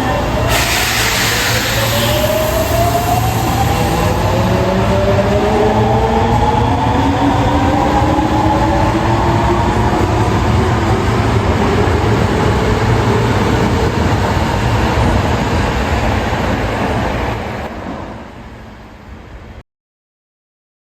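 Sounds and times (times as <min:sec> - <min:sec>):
subway train rumbling on rails: 0:00.0 - 0:19.6.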